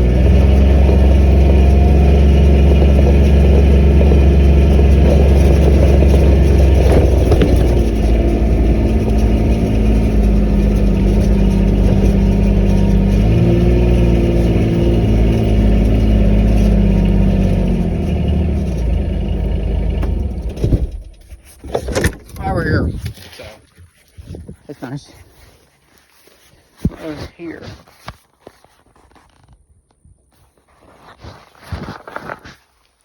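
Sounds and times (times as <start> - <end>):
car engine and road noise: 0.0 - 23.6.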